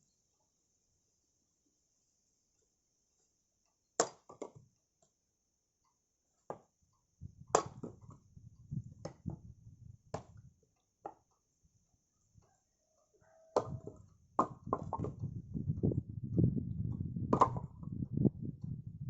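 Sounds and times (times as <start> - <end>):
wooden knocks and cracks: 13.6 - 15.4
low rumbling noise: 15.2 - 19.0.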